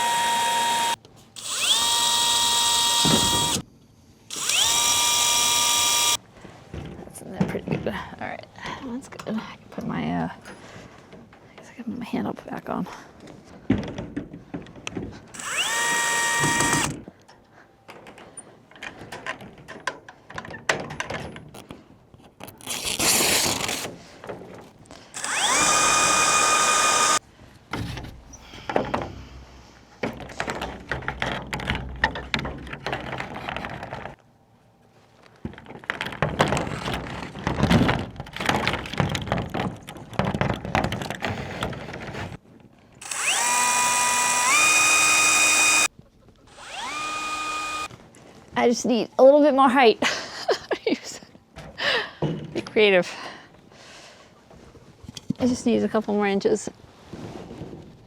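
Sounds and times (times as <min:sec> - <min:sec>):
power drill whining: 0:00.0 - 0:03.6, 0:04.3 - 0:06.2, 0:15.4 - 0:17.0, 0:22.7 - 0:23.9, 0:25.2 - 0:27.2, 0:43.0 - 0:45.9, 0:46.5 - 0:47.9
plastic panels rattling and knocking: 0:13.6 - 0:15.2, 0:30.0 - 0:34.2, 0:35.5 - 0:42.4.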